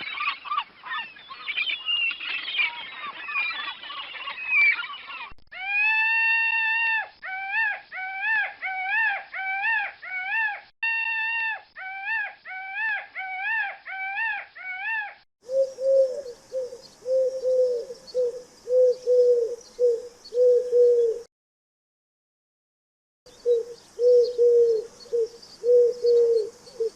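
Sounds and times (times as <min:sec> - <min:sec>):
bird calls: 0:00.0 - 0:05.4, 0:11.9 - 0:21.3, 0:23.3 - 0:26.9
low cooing bird call: 0:11.8 - 0:21.3, 0:23.3 - 0:26.9.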